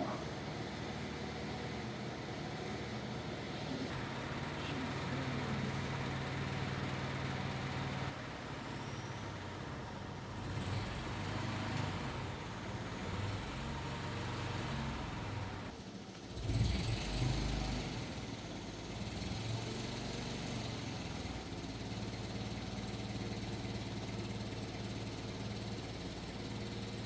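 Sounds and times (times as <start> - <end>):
vehicle engine humming: 0.0 - 8.1, 15.7 - 27.0.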